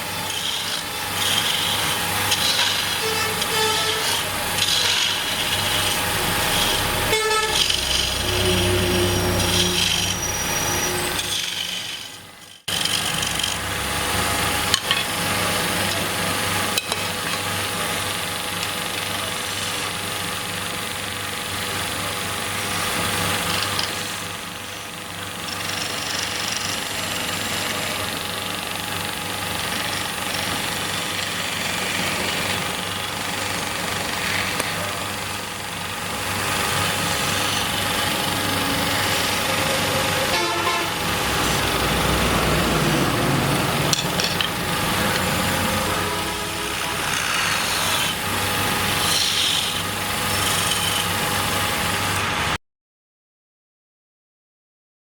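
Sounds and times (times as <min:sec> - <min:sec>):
chisel scraping spinning wood: 0:00.0 - 0:20.2, 0:21.0 - 0:52.3
wood lathe humming: 0:00.0 - 0:52.3.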